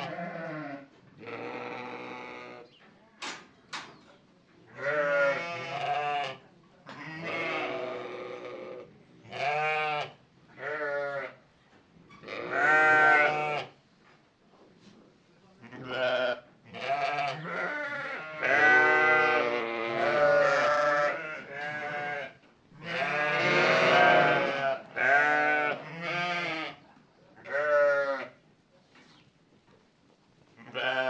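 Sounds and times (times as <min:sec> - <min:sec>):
farm animals bleating: 0:00.0 - 0:02.7, 0:04.7 - 0:11.4, 0:12.1 - 0:13.8, 0:15.6 - 0:26.8, 0:27.4 - 0:28.4, 0:30.6 - 0:31.0.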